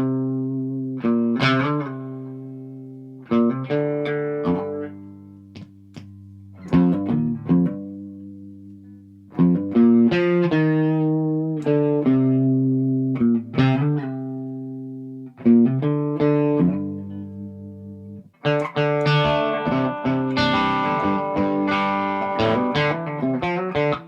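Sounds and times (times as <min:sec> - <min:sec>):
electric guitar single notes: 0:09.4 - 0:24.0
strummed guitar chord: 0:18.6 - 0:23.9.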